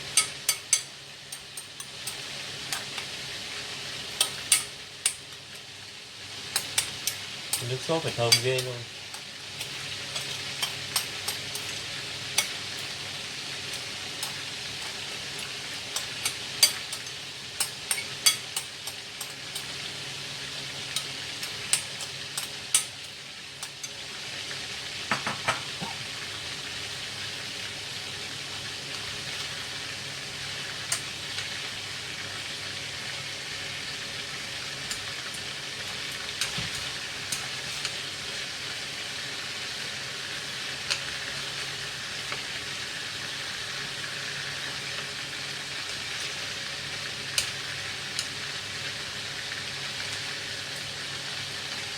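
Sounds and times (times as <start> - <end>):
meat sizzling in hot oil: 0.0 - 51.9.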